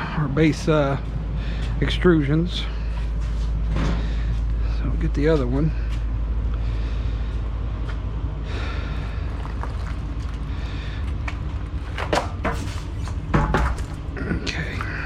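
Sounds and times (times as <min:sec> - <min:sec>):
low rumble: 0:06.0 - 0:15.0.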